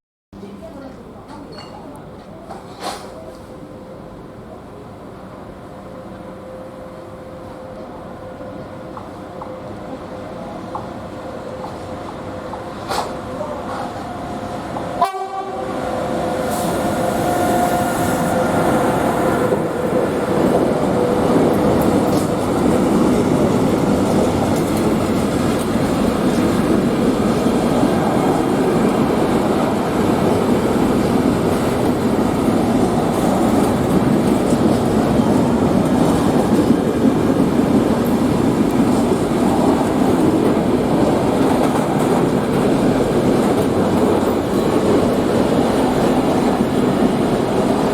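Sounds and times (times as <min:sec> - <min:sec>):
train wheels rumbling on rails: 0:04.3 - 0:47.9
train horn: 0:14.9 - 0:19.5.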